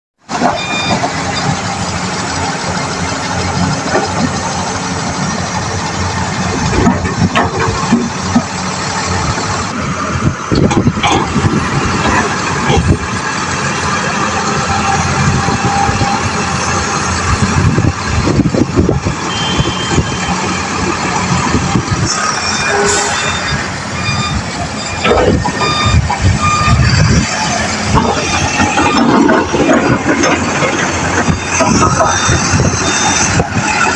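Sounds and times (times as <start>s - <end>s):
diesel engine running: 0.3s - 33.9s
metal clanks and knocks: 6.6s - 8.5s, 10.5s - 13.2s, 27.8s - 33.9s.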